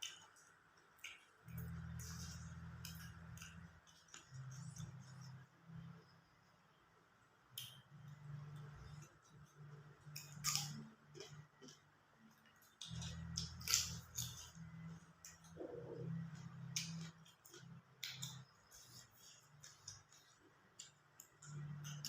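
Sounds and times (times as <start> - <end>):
crunching food: 7.6 - 22.0.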